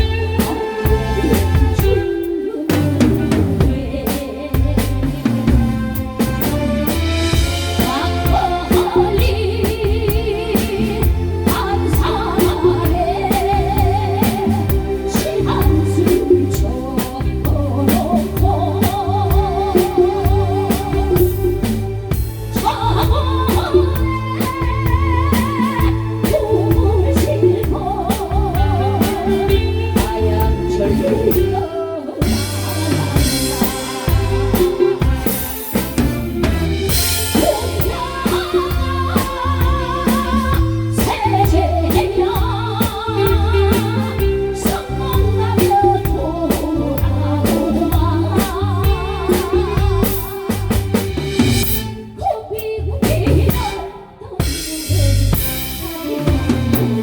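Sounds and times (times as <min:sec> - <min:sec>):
bass: 0:00.0 - 0:57.0
drum kit: 0:00.0 - 0:57.0
live band playing: 0:00.0 - 0:57.0
person singing with vibrato: 0:00.0 - 0:57.0
cymbals: 0:32.2 - 0:41.5.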